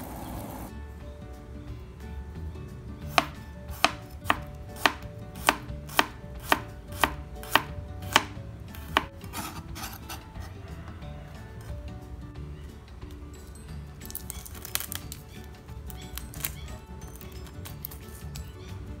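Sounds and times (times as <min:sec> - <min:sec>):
knife chopping on plastic board: 0:03.1 - 0:10.2
knife scraping cutting board: 0:04.8 - 0:10.6.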